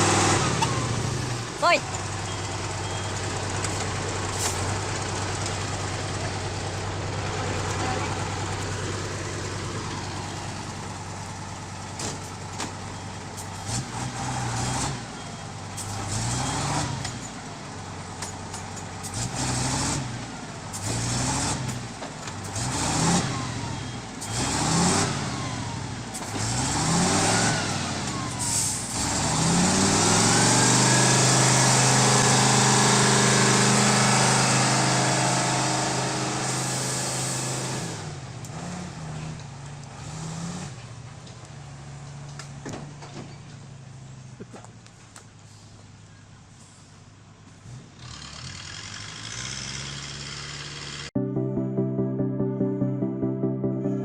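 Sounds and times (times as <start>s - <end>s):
heavy vehicle engine revving: 0.0s - 41.1s, 47.6s - 51.2s.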